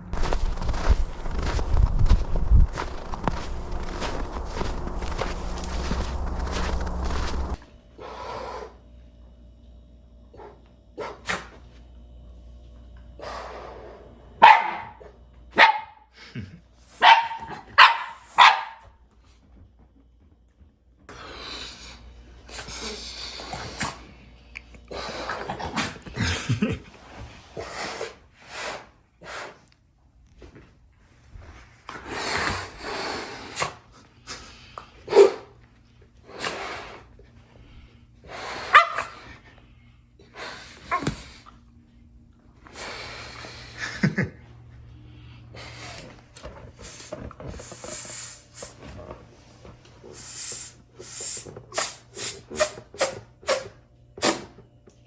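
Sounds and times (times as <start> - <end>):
scuffling noise: 0.1 - 7.6
dog barking sharply: 14.4 - 16.0, 17.0 - 18.9, 38.7 - 39.3.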